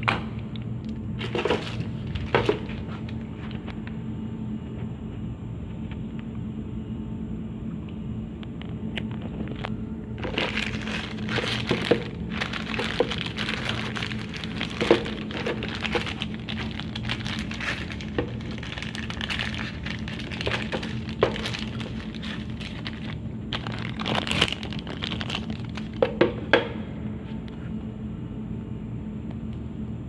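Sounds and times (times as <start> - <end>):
crinkling: 0.0 - 4.0, 9.0 - 26.5
steady low hum: 0.0 - 30.0.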